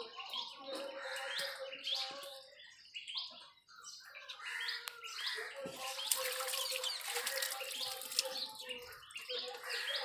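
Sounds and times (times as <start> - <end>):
small birds chirping: 0.0 - 10.0
water pouring and splashing: 5.6 - 10.0.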